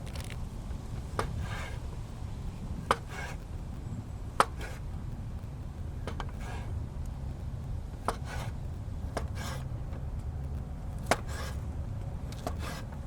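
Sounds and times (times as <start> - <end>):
low steady rumble: 0.0 - 13.0
rasping scrape: 1.2 - 1.9, 2.8 - 3.6, 4.4 - 4.9, 6.1 - 6.8, 8.1 - 8.6, 9.2 - 9.7, 11.0 - 11.7, 12.3 - 13.0.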